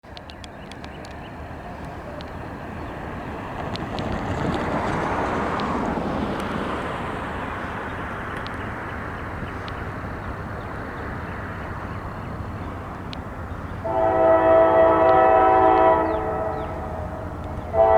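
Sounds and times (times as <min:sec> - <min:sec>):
freight train rumble: 0:00.0 - 0:17.9
wind noise: 0:02.7 - 0:11.5.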